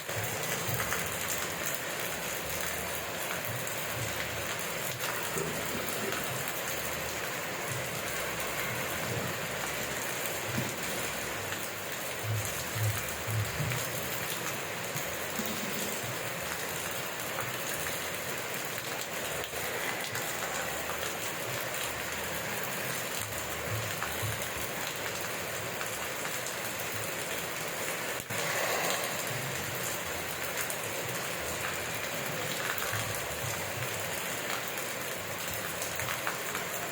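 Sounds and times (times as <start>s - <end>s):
rain falling: 0.0s - 36.9s.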